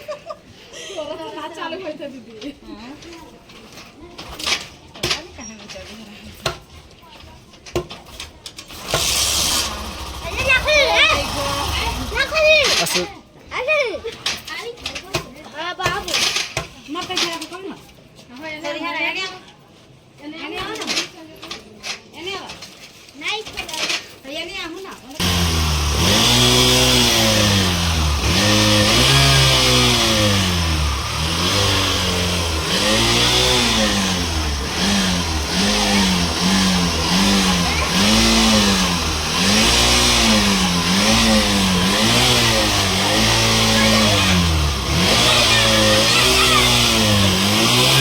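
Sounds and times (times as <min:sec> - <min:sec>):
motorcycle engine revving: 0:08.7 - 0:12.7, 0:25.2 - 0:48.0.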